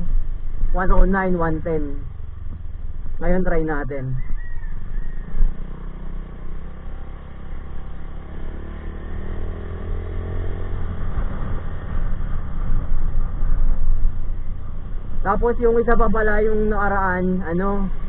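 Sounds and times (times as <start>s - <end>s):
wind and road noise: 0.0s - 18.0s.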